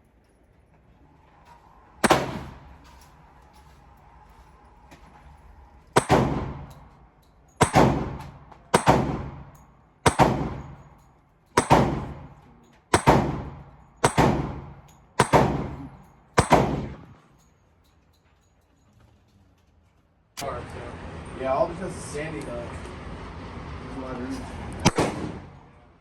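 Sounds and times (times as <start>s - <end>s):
gunshots: 2.0s - 2.7s, 6.0s - 6.7s, 7.6s - 10.9s, 11.6s - 17.1s, 24.8s - 25.7s.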